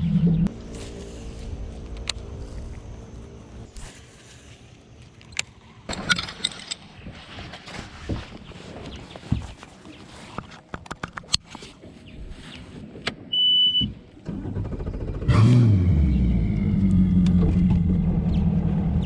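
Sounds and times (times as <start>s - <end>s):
outboard engine starting and idling: 14.2s - 19.0s.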